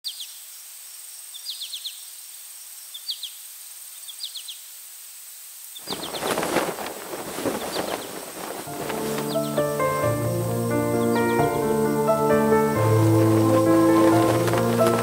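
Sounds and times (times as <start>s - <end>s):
steady outdoor hiss: 0.1s - 15.0s
small bird calling: 1.3s - 4.7s, 5.7s - 11.5s.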